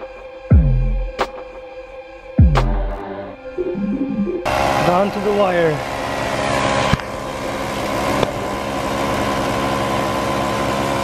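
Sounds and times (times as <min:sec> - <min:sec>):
small engine running: 0:04.5 - 0:11.0.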